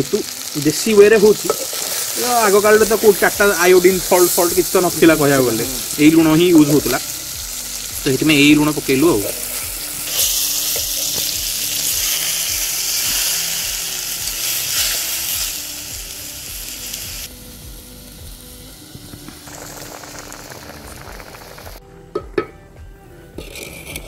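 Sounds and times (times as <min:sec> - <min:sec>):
meat sizzling in hot fat: 0:00.0 - 0:21.8
ladle knocking against pot: 0:22.2 - 0:22.6.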